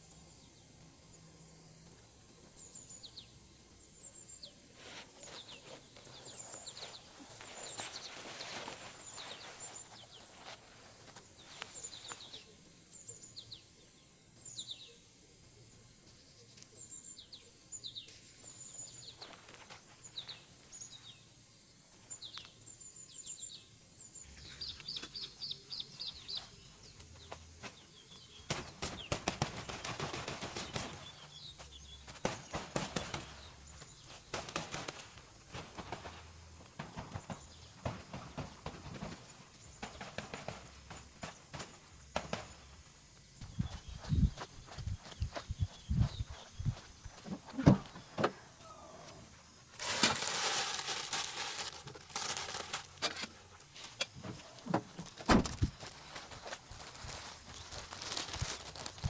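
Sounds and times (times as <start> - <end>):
small birds chirping: 0.0 - 59.0
crackling clicks and rustling: 49.8 - 59.0.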